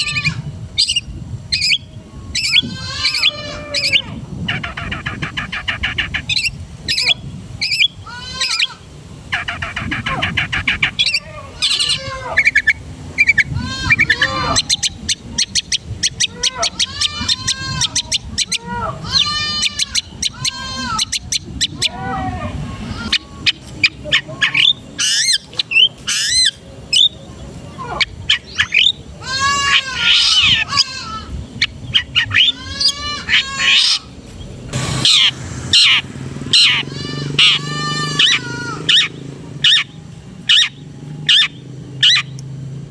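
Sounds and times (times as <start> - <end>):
bird singing varied song: 0.0 - 22.0, 23.0 - 29.1, 33.3 - 42.5
low background rumble: 26.0 - 42.9
shrike singing: 34.7 - 42.4.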